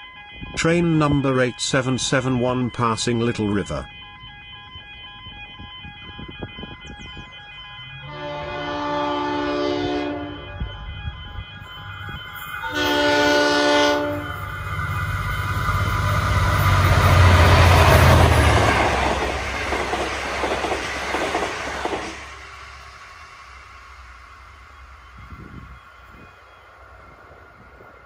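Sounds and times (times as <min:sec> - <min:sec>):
train engine hum: 0:03.8 - 0:28.0
train horn blasts: 0:07.8 - 0:14.6
wheels clattering over rails: 0:15.2 - 0:22.3.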